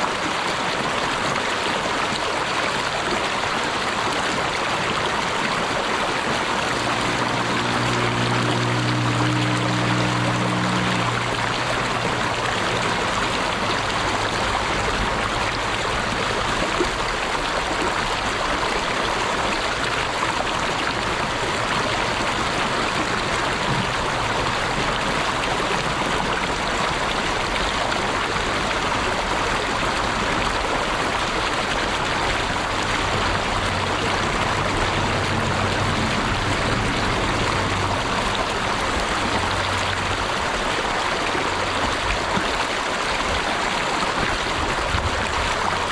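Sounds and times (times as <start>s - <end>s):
stream babbling: 0.0s - 45.9s.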